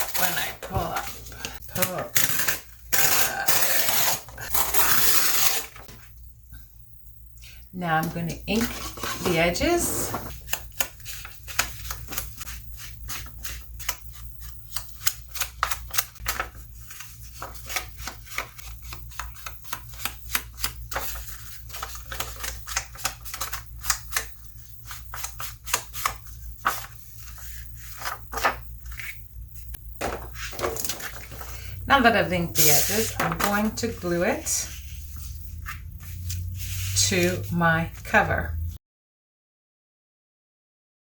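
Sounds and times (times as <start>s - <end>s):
low steady hum: 18.8s - 38.8s.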